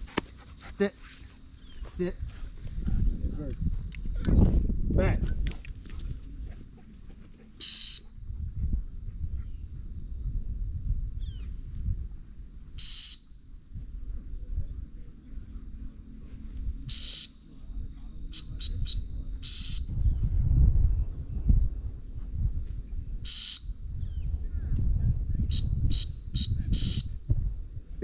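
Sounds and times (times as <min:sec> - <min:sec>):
faint high-pitched hum: 0:00.0 - 0:28.0
dog training whistle blasts: 0:07.6 - 0:08.4, 0:12.8 - 0:13.5, 0:16.9 - 0:17.5, 0:18.4 - 0:20.0, 0:23.2 - 0:23.8, 0:25.6 - 0:27.3.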